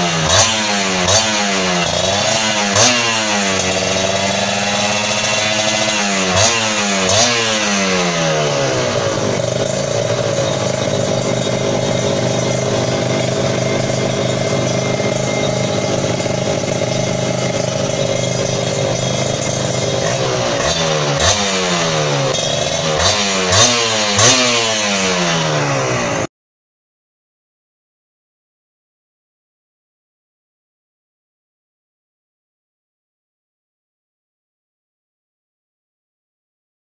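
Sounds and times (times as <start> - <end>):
motorcycle engine revving and idling: 0.0 - 26.3.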